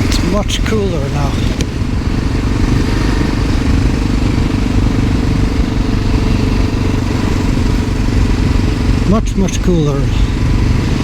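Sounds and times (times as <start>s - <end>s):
motorcycle engine running: 0.0s - 11.0s
wind rush: 0.0s - 11.0s.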